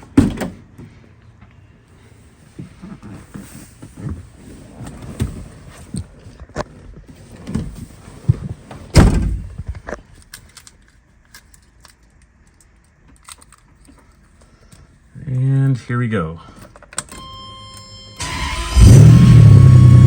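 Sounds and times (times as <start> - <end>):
handling knocks and rustles: 0.0 - 14.9
car door thump: 8.9 - 9.5.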